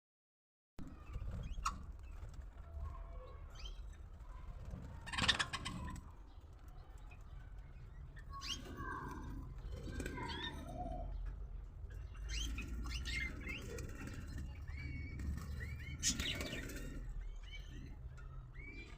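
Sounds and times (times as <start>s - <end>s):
lovebirds chirping: 11.9s - 18.9s.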